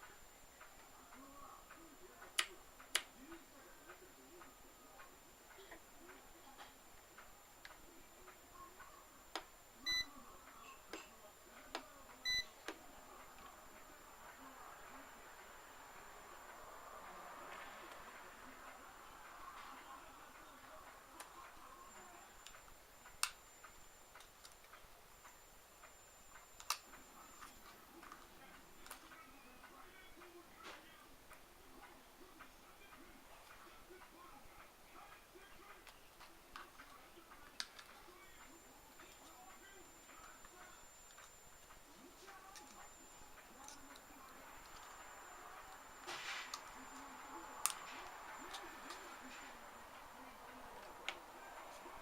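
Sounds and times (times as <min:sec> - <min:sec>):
faint plastic clicks and taps: 0:10.4 - 0:13.9, 0:19.6 - 0:39.5.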